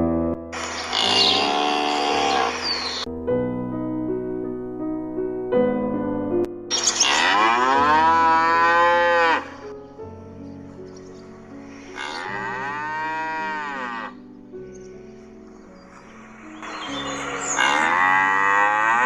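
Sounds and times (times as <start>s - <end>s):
soft piano music: 0.0s - 19.0s
cow mooing: 0.6s - 3.1s, 6.7s - 9.7s, 11.9s - 14.2s, 16.6s - 19.0s.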